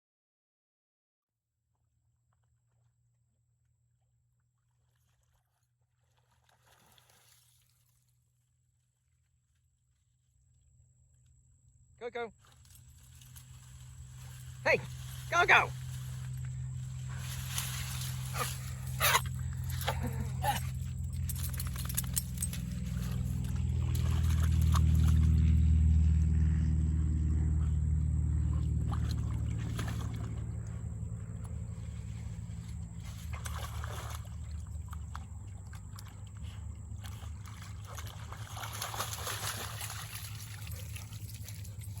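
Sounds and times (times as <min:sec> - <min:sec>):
vehicle engine passing: 0:13.1 - 0:42.0.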